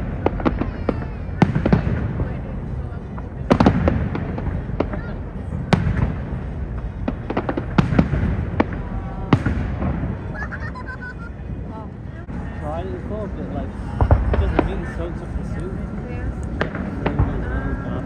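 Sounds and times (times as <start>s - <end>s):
fireworks bangs: 0.0s - 11.2s, 14.0s - 15.6s, 16.6s - 17.9s
low rumble: 0.0s - 18.0s.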